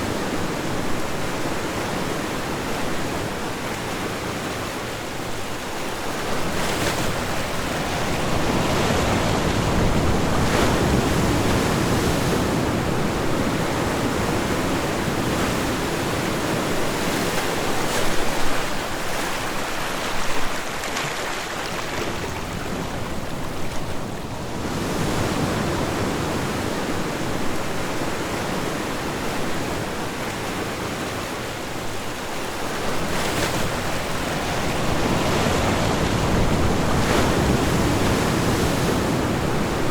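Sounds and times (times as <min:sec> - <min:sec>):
ocean waves washing ashore: 0:00.0 - 0:39.9.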